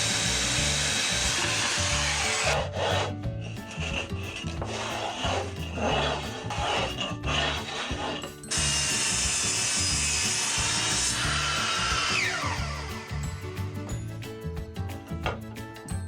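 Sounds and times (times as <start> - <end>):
power tool running on wood: 0.0 - 14.0
background music with beat: 0.0 - 16.0
rubbing strokes on wood: 1.2 - 8.3.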